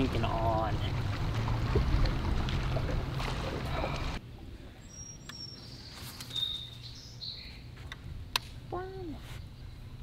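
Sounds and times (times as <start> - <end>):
songbird chirps and trill: 4.8 - 7.7.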